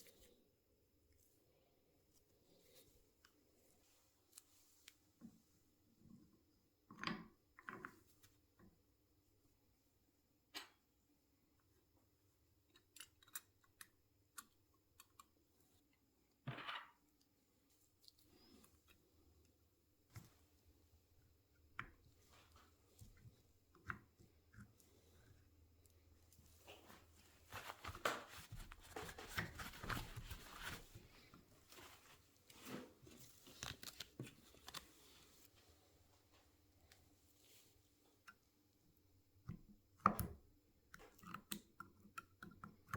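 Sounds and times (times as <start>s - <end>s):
hand-handling rustling and crinkling: 24.8s - 38.2s.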